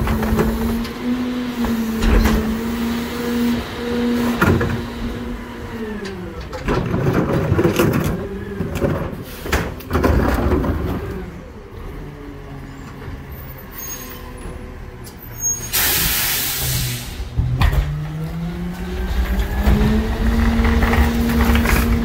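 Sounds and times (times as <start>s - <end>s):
garbage truck engine: 0.0s - 22.0s
trash crunching and banging: 6.1s - 11.3s, 17.3s - 22.0s.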